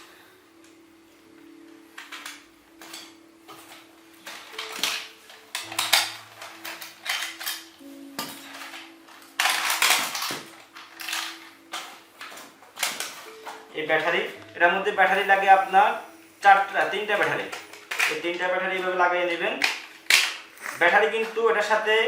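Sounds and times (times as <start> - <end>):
faint background music: 0.0 - 22.0
plastic toy clattering and scraping: 2.0 - 13.6, 17.2 - 18.4.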